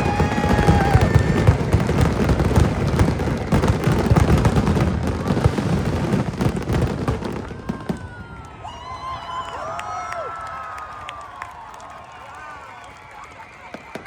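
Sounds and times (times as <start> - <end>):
fireworks bursts and bangs: 0.0 - 9.8, 13.1 - 14.0.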